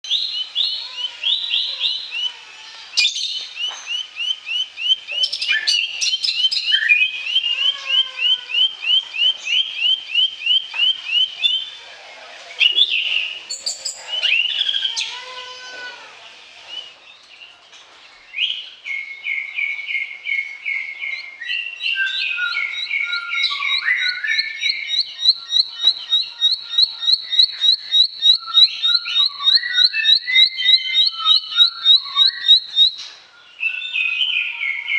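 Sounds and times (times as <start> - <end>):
bird singing high chips: 3.0 - 11.8, 22.2 - 33.2.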